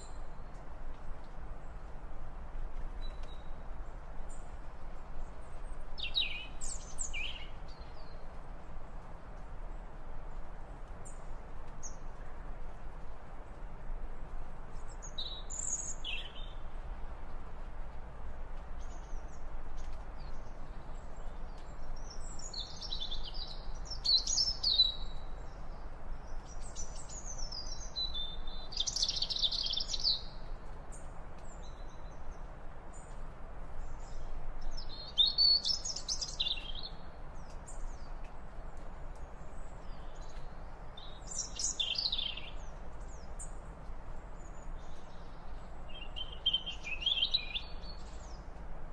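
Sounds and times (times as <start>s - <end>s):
low background hiss: 0.0s - 48.9s
songbird chirping and trilling: 5.5s - 8.3s, 14.8s - 16.6s, 18.8s - 30.4s, 33.9s - 38.1s, 39.4s - 43.6s, 44.3s - 48.6s.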